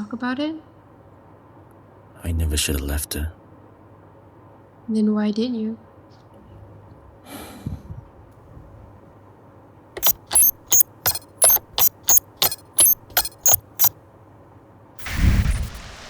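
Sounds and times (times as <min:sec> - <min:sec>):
sharp mechanical clicks: 0:10.0 - 0:13.9, 0:15.0 - 0:15.9.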